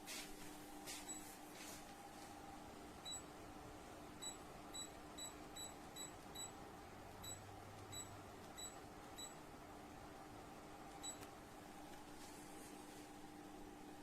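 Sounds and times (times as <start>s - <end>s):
faint steady hum: 0.0s - 14.0s
tower fan control beeps: 1.0s - 1.4s, 3.0s - 3.4s, 4.2s - 9.5s, 10.9s - 11.3s.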